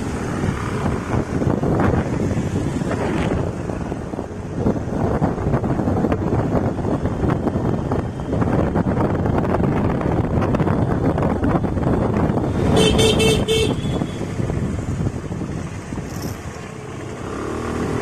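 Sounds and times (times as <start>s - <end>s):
road noise: 0.0s - 18.0s
wind buffeting microphone: 0.0s - 18.0s.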